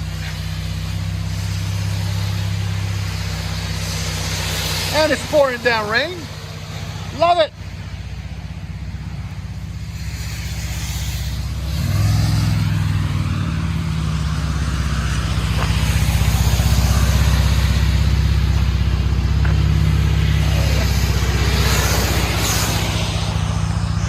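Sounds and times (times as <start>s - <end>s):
car engine through loud exhaust: 0.0s - 24.0s.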